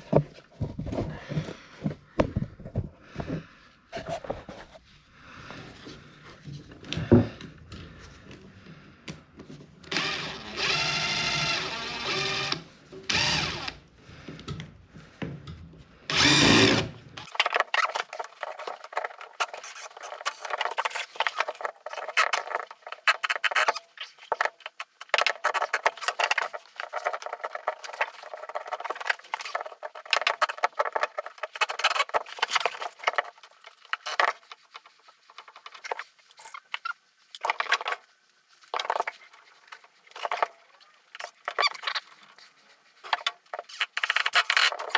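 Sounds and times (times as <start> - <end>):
power drill running: 9.9 - 13.8, 16.1 - 16.9.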